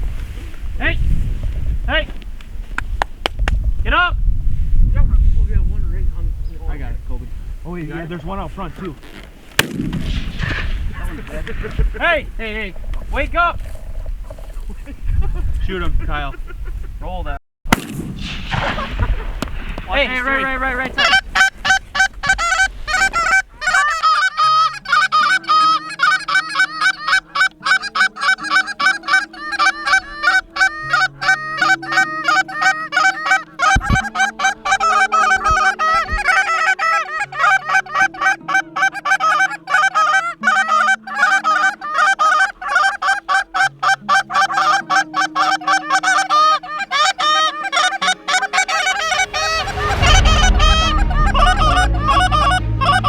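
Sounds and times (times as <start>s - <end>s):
geese honking: 18.5s - 53.0s
slow low background music: 24.3s - 53.0s.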